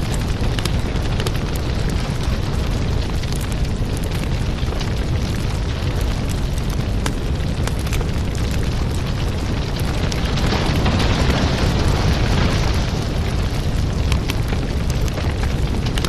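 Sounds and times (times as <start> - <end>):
firewood burning with crackles: 0.0 - 16.0.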